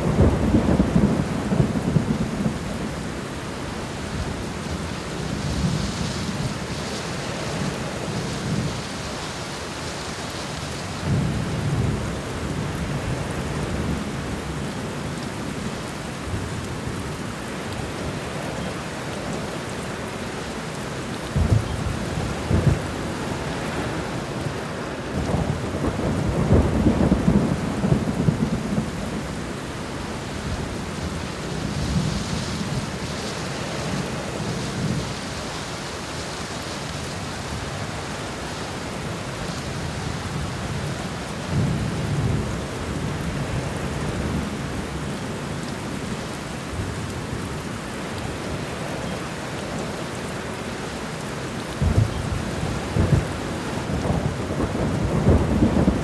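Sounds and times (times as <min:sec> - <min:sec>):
thunder rumbling: 0:00.0 - 0:03.0, 0:21.2 - 0:35.3, 0:51.7 - 0:56.0
heavy rain: 0:00.0 - 0:56.0.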